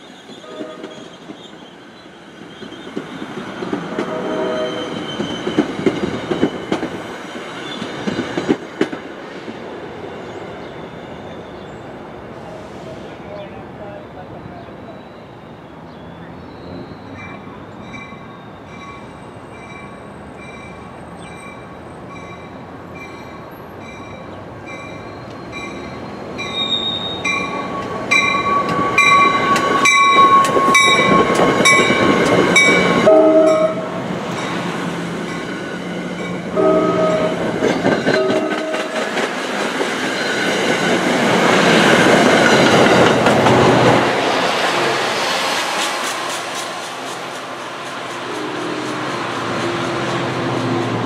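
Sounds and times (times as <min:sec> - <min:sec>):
train passing rumble: 0:00.0 - 0:51.0
train horn: 0:00.4 - 0:01.1, 0:03.9 - 0:05.0, 0:32.6 - 0:34.0, 0:36.5 - 0:39.1
train bell ringing: 0:17.0 - 0:35.6.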